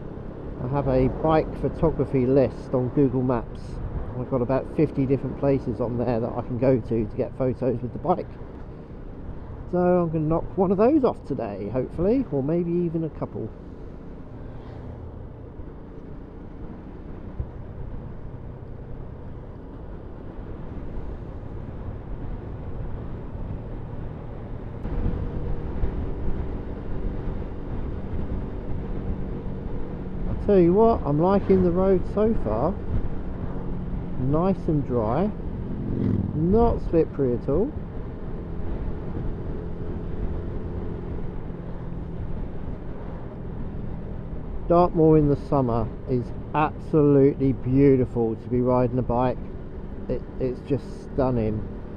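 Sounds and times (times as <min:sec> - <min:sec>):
rush of riding noise: 0:00.0 - 0:51.9
wind and road noise: 0:00.0 - 0:51.9
motorcycle engine cruising: 0:12.0 - 0:48.0, 0:48.8 - 0:51.9
motorcycle engine running: 0:35.4 - 0:36.6.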